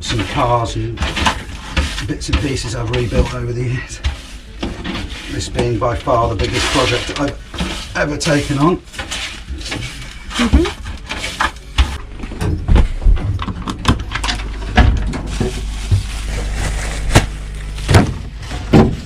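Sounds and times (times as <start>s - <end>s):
knocks and clatters: 0.0s - 16.2s, 17.1s - 19.0s.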